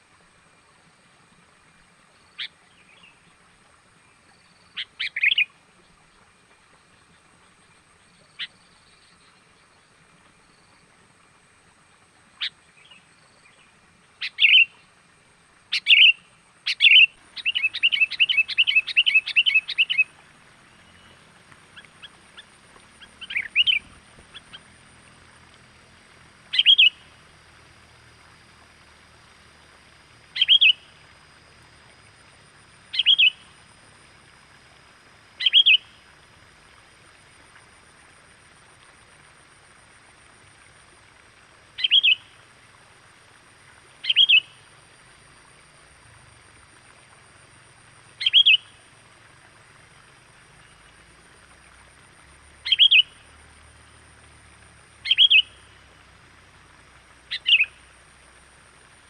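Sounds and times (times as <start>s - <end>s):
bulbul lure call chirps: 14.2s - 14.8s, 15.7s - 20.2s, 20.8s - 24.7s, 26.5s - 27.1s, 30.3s - 30.9s, 32.9s - 33.5s, 35.4s - 36.0s, 41.8s - 42.3s, 44.0s - 44.6s, 48.2s - 48.8s, 52.6s - 53.2s, 55.0s - 55.7s, 57.3s - 57.8s.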